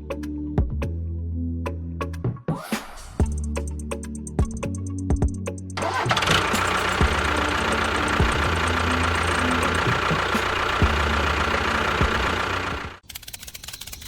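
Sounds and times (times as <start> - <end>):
small engine running: 5.8 - 14.0.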